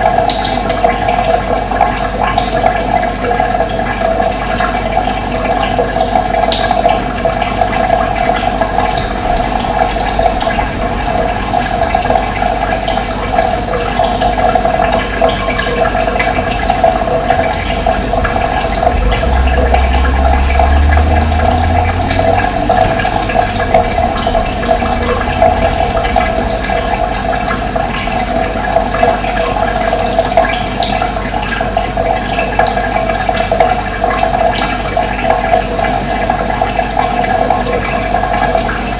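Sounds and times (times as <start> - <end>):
running water: 0.0 - 38.9
low rumble: 8.0 - 13.8, 15.6 - 30.7.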